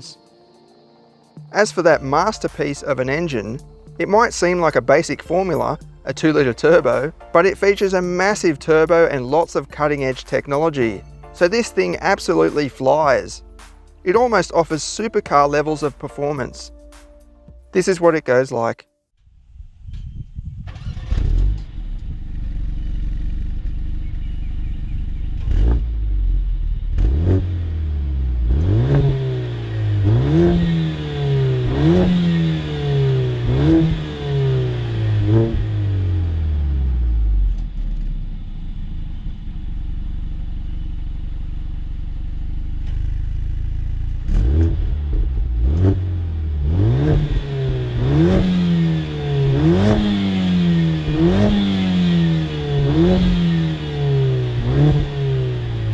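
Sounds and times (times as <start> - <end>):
car engine accelerating: 20.6 - 55.9.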